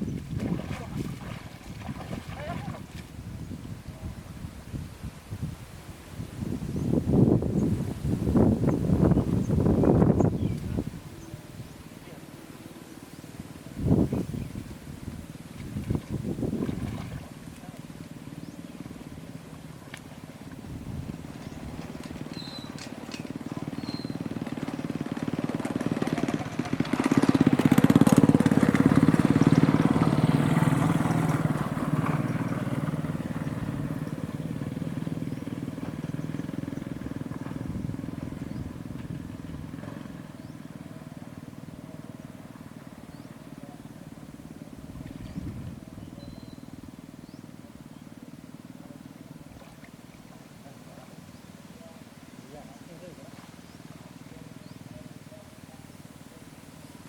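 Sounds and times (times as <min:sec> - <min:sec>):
small engine running: 0:20.4 - 0:44.9.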